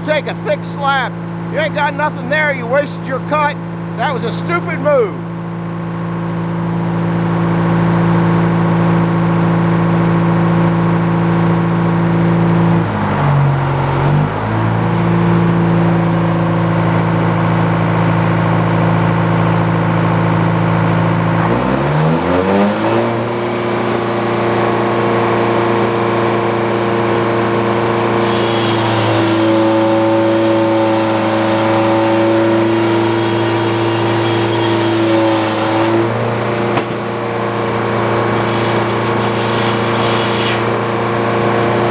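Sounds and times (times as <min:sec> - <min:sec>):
sawmill engine running: 0:00.0 - 0:41.9.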